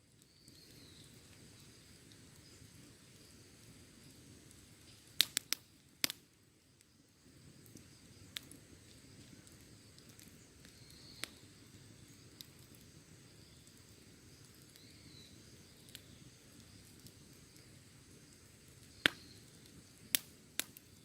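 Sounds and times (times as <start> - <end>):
campfire crackling: 0.0 - 21.0.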